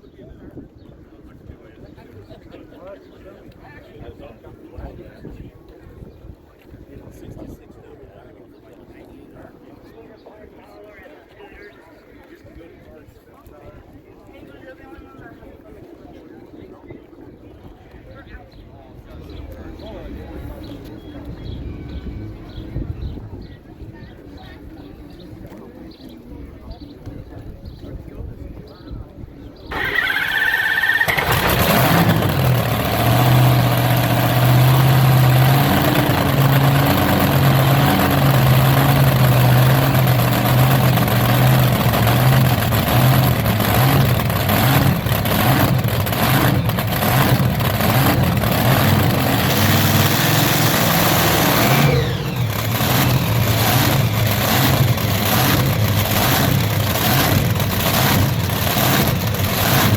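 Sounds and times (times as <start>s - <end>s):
tractor engine running loudly: 29.7s - 59.9s.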